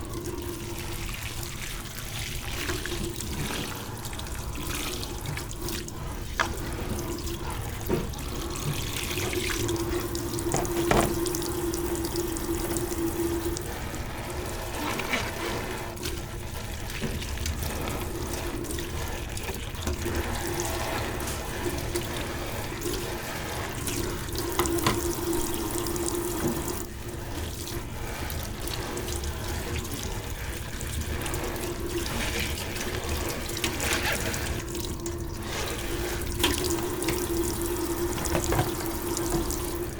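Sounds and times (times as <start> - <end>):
tap running: 4.6 - 13.9, 23.5 - 26.9, 31.2 - 39.9
dishes clinking: 10.5 - 11.3.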